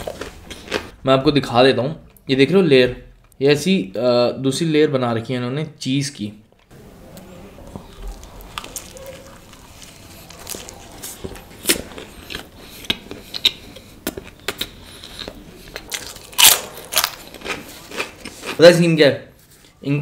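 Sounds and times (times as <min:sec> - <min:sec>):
chewing mouth sounds: 0:07.2 - 0:18.6
person biting pizza: 0:07.2 - 0:18.6.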